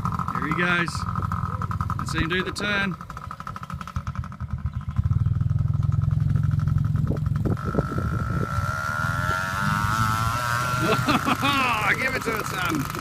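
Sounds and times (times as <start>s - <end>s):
small motorbike humming: 0.0s - 13.0s.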